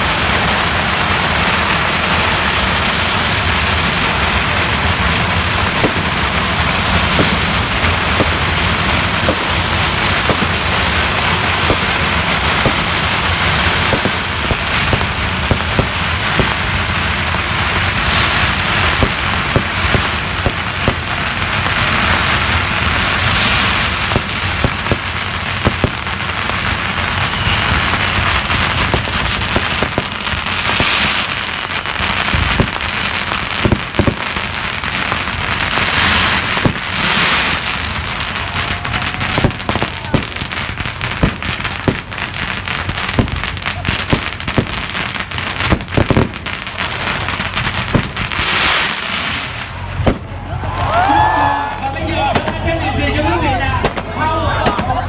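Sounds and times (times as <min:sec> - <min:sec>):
firecrackers crackling: 0:00.0 - 0:55.0
fireworks bangs: 0:00.0 - 0:55.0
falling firework whistles: 0:05.6 - 0:47.2, 0:47.9 - 0:51.8.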